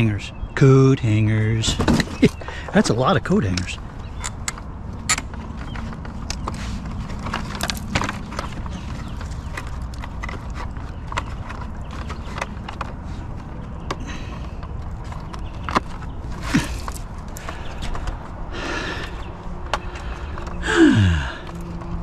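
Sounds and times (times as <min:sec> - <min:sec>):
coat hangers clattering: 0:01.6 - 0:22.0.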